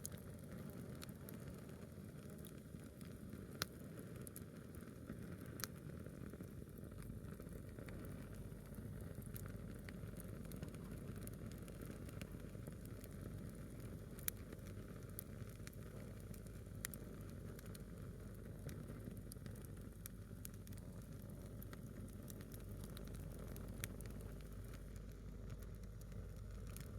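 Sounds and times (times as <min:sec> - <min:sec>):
campfire crackling and popping: 0:00.0 - 0:26.9.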